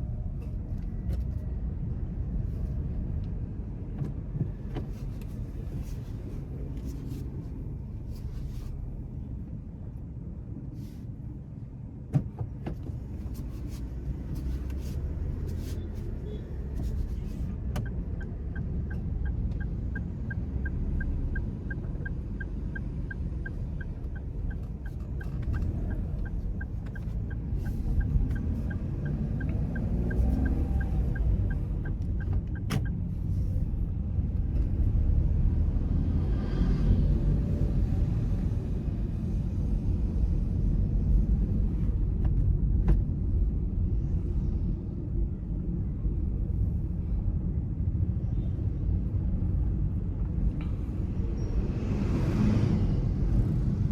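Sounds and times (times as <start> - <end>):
car engine and road rumble: 0.0 - 53.9
turn signal ticking: 14.1 - 33.8.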